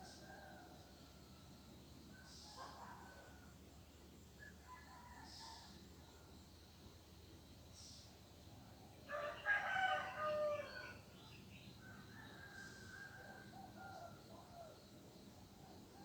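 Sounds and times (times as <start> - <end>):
rooster crowing: 9.1 - 10.8.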